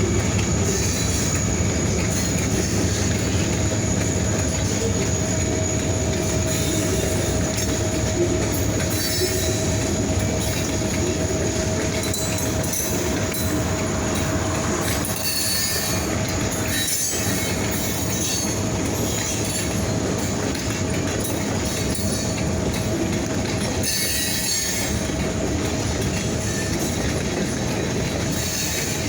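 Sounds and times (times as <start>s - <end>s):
freight train rumbling: 0.0s - 29.0s
wheel squeal: 8.4s - 10.7s, 11.5s - 19.8s.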